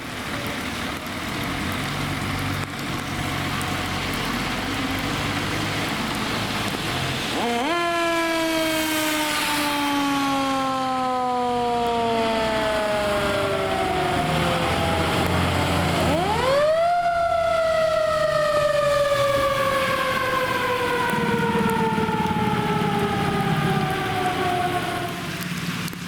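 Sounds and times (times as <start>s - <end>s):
truck engine rumbling: 0.0s - 26.0s
fire truck siren winding: 7.4s - 25.5s.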